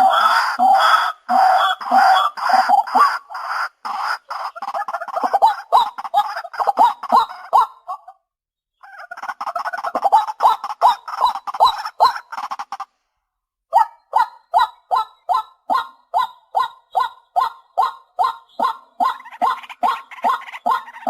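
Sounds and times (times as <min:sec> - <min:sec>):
waterhen calling: 0:00.0 - 0:08.0, 0:14.6 - 0:21.0.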